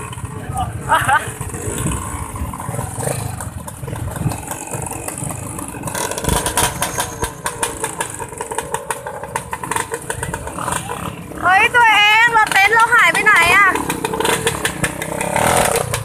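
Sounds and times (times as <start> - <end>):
vehicle engine rumbling: 0.0 - 16.0
clatter of rattles and knocks: 2.6 - 10.9, 13.8 - 16.0.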